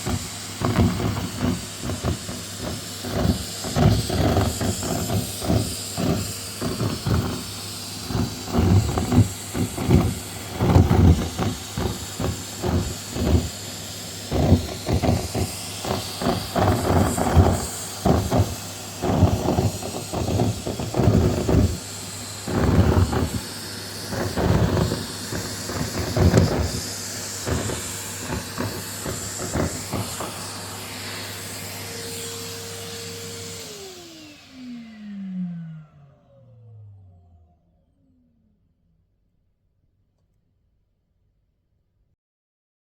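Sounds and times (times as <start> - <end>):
scraps rattling through nozzle: 0.0 - 30.6
vacuum cleaner running: 0.0 - 38.6.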